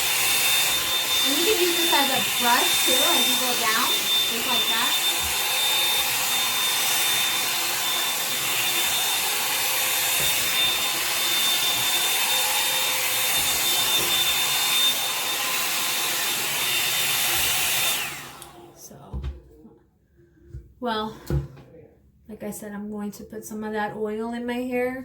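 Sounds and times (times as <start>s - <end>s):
hair dryer brush running: 0.0s - 18.8s.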